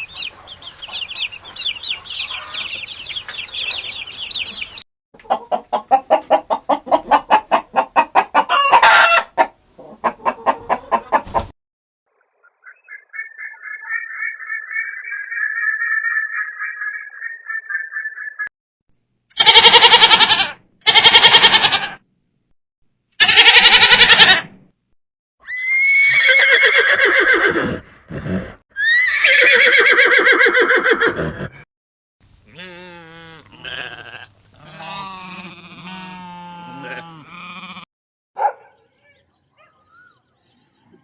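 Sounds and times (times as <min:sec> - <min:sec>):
goats bleating: 0:19.4 - 0:22.0, 0:32.5 - 0:37.9.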